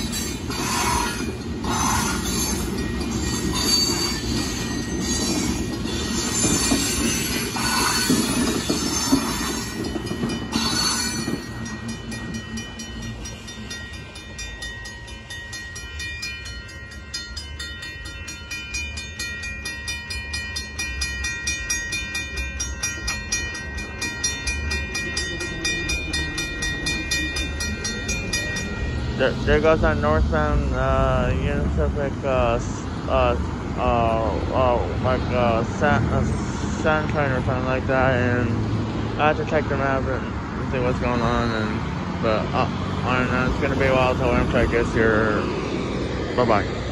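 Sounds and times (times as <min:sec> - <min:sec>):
crossing bell dinging: 0:00.0 - 0:46.9
train wheels rumbling and squealing: 0:00.0 - 0:46.9.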